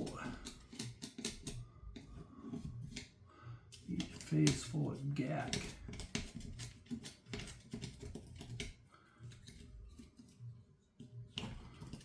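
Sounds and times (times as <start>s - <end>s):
hand tools clicking on metal: 0.0s - 1.6s, 3.7s - 8.8s.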